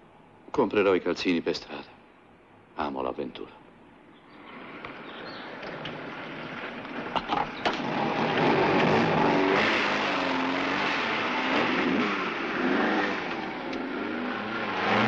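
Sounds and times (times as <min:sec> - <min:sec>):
car engine revving and accelerating: 0:07.7 - 0:15.0.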